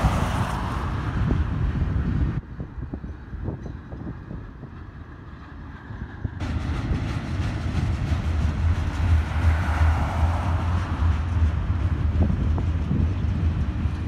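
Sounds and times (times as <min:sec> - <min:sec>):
vehicle tyre noise passing: 0:00.0 - 0:02.4, 0:05.0 - 0:14.0
train rumbling on rails: 0:00.0 - 0:14.0.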